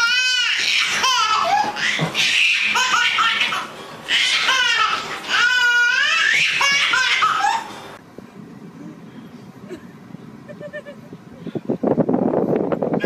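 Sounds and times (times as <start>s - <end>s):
high-pitched laughter-like vocalizing: 9.6s - 11.2s.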